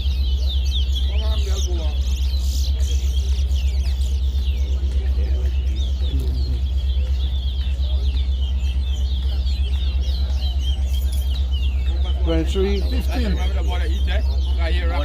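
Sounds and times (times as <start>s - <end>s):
songbirds singing: 0.0s - 15.0s
steady low hum: 0.0s - 15.0s.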